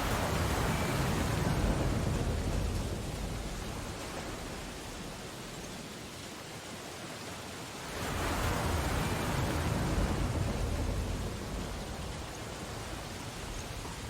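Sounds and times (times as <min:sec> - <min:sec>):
ocean wave breaking: 0:07.8 - 0:13.0.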